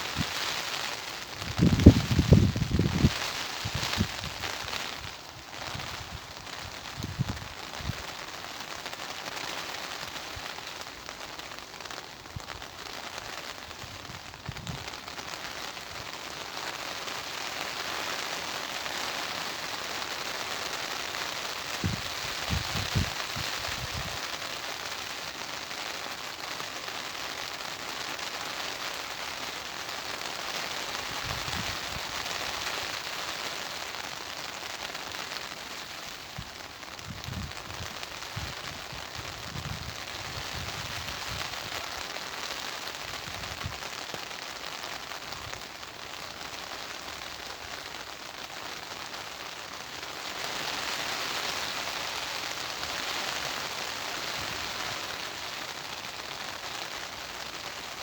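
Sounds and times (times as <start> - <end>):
steady rain falling: 0.0 - 58.0
wind gusts: 1.2 - 8.1, 21.8 - 24.2, 31.0 - 32.6, 36.3 - 41.8.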